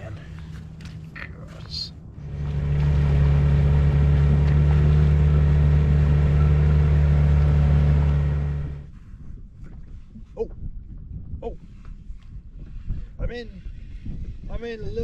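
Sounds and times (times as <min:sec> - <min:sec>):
small outboard motor running: 0:02.2 - 0:08.9.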